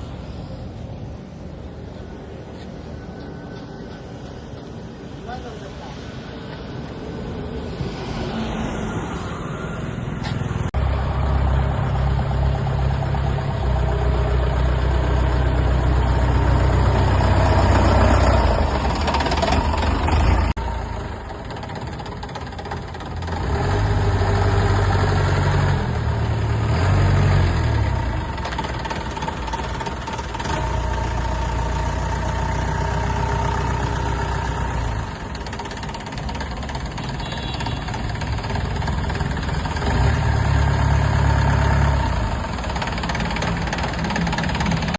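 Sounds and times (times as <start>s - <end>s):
jeep engine revving: 23.1s - 31.6s, 38.1s - 44.9s.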